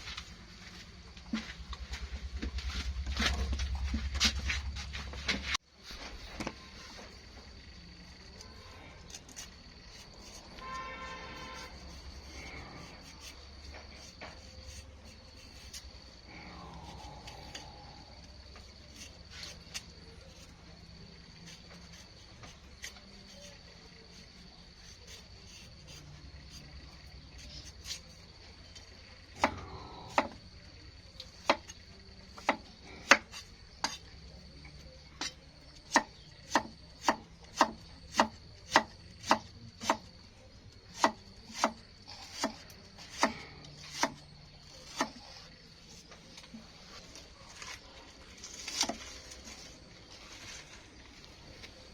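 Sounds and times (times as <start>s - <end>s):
knife chopping on wooden board: 35.2s - 40.1s, 40.9s - 44.2s.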